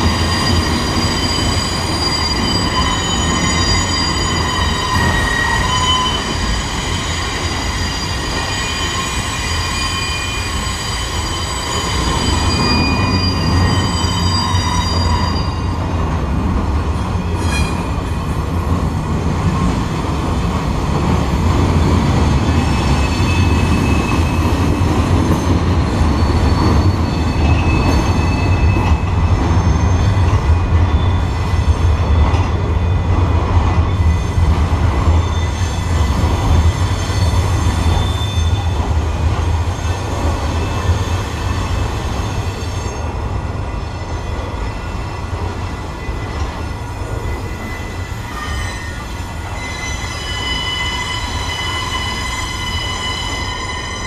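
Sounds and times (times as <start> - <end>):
high thin wheel squeal: 0.0 - 15.8, 47.2 - 54.0
train wheels rumbling on rails: 0.0 - 54.0.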